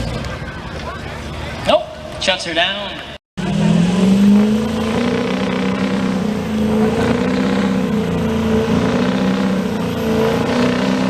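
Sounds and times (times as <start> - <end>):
truck engine running: 3.4 - 11.0.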